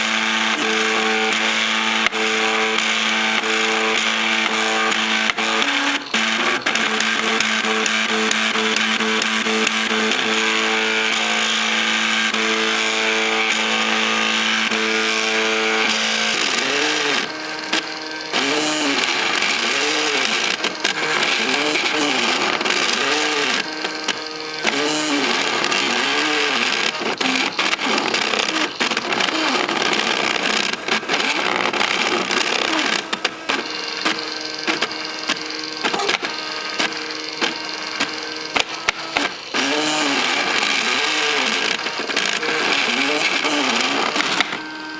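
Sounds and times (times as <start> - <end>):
stepper motors whining: 0.0 - 44.9.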